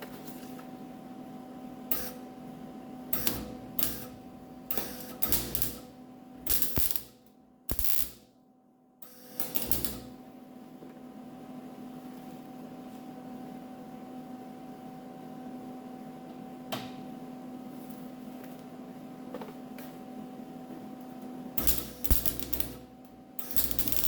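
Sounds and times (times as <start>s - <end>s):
welding arc crackling: 3.2s - 5.9s, 6.5s - 8.2s, 9.2s - 10.1s, 21.6s - 24.0s
steady hum: 3.3s - 8.2s, 21.6s - 24.0s.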